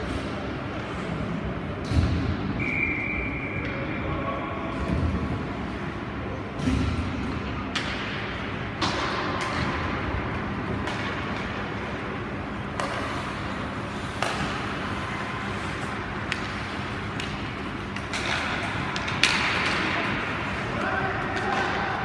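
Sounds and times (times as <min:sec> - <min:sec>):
hockey sticks clacking on puck: 0:07.7 - 0:22.0.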